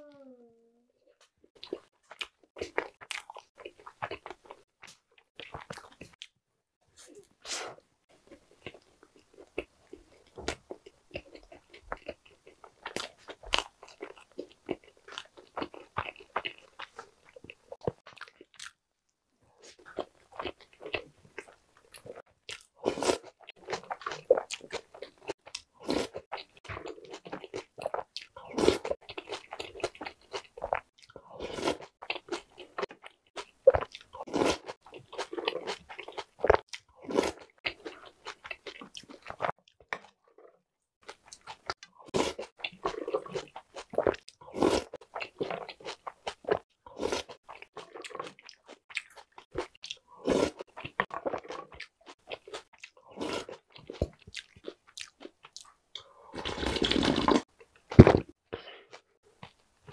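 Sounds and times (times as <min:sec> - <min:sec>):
chewing and biting sandwich: 0:19.6 - 0:59.9.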